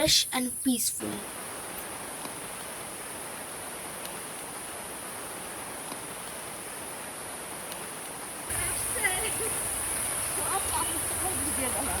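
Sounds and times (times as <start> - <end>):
insects droning: 0.0 - 12.0
outdoor hiss: 0.0 - 12.0.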